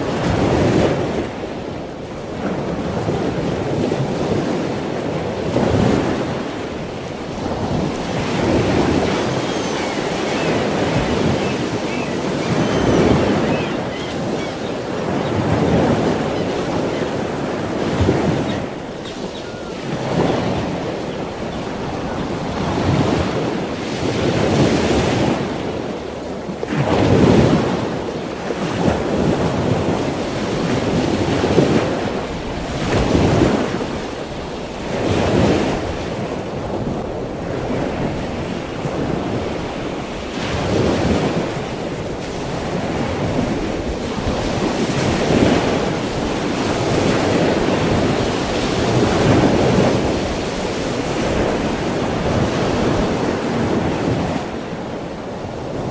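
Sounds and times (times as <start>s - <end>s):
ocean waves washing in: 0.0s - 55.9s.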